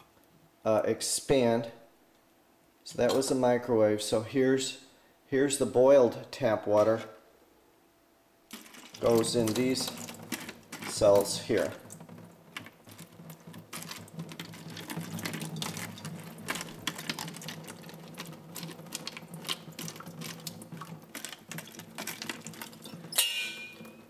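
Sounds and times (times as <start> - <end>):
water trickling and dripping: 14.0 - 24.0.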